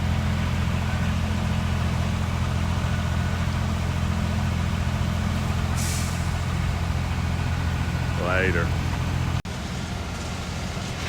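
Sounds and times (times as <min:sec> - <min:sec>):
diesel truck engine running: 0:00.0 - 0:11.0
short hiss: 0:05.8 - 0:06.3.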